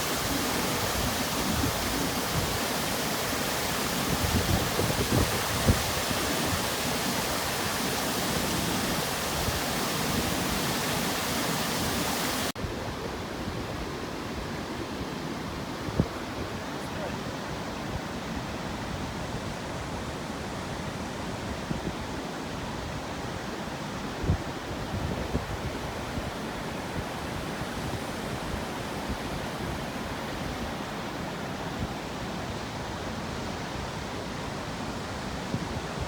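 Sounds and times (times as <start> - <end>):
waterfall rushing: 0.0 - 12.6.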